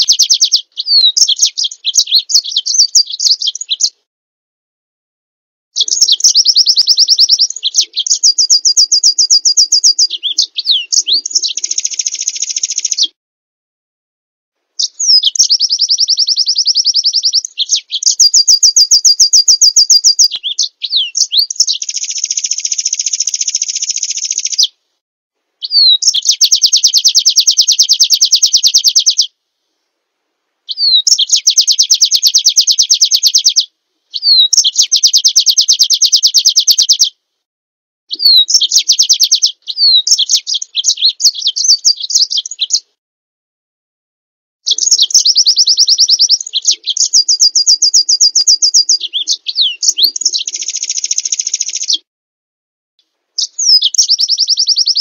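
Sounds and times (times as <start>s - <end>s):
downslurred bird whistle: 0.0s - 4.0s, 5.8s - 13.2s, 14.8s - 24.8s, 25.6s - 29.3s, 30.7s - 37.2s, 38.1s - 43.0s, 44.7s - 52.1s, 53.4s - 55.0s
songbird rapid trills: 5.8s - 13.1s, 21.2s - 24.6s, 44.7s - 52.0s.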